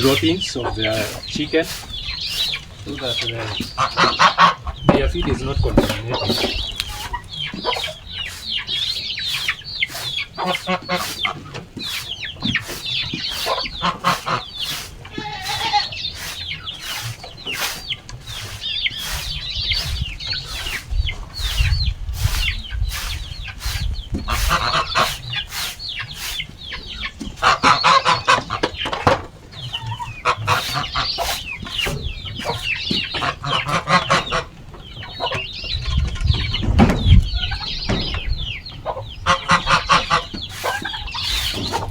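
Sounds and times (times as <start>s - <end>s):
short scraping strokes: 0.0s - 4.4s, 5.6s - 26.6s, 27.2s - 28.1s, 29.6s - 33.9s, 39.5s - 41.9s
chickens clucking: 0.0s - 41.9s.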